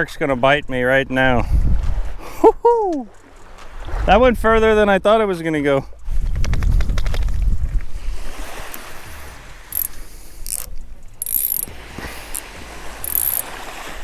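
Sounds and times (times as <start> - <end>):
fishing reel gears clicking: 9.7 - 13.7.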